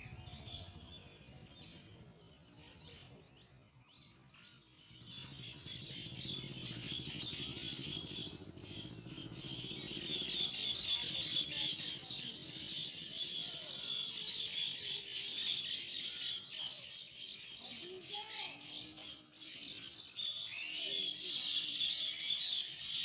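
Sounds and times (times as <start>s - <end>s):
birds chattering: 0.0s - 23.0s.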